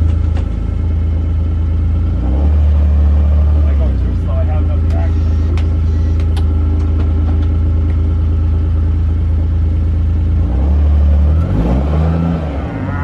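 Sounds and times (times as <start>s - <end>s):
vehicle engine droning under load: 0.0s - 13.0s.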